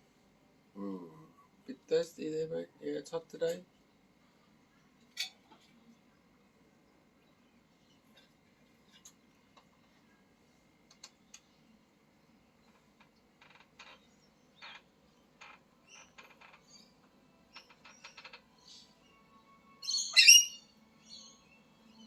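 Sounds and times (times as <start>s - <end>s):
parrot harsh call: 19.8s - 20.6s.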